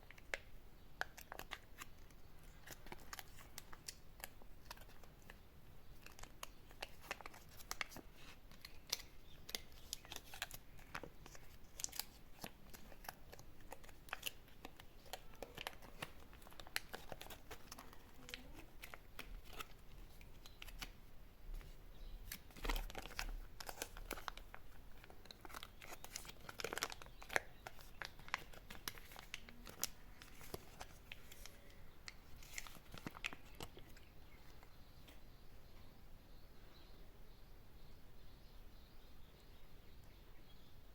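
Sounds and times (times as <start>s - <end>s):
candy wrappers crinkling: 0.1s - 21.0s, 22.2s - 34.6s.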